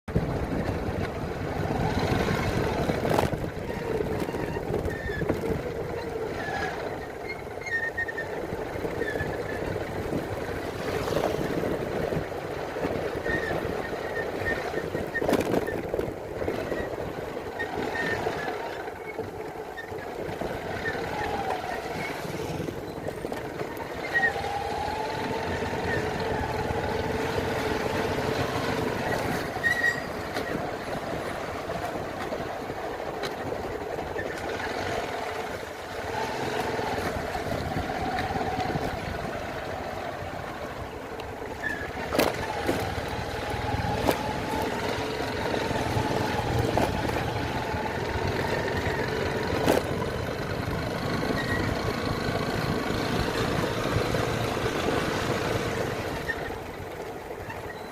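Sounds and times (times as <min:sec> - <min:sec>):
motorcycle engine running: 0:14.5 - 0:57.9.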